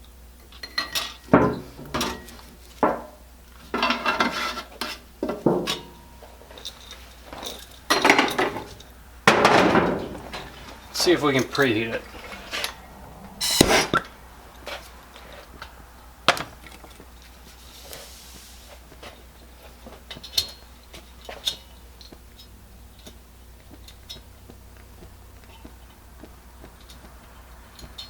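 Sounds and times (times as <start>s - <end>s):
short noisy burst: 12.2s - 14.3s.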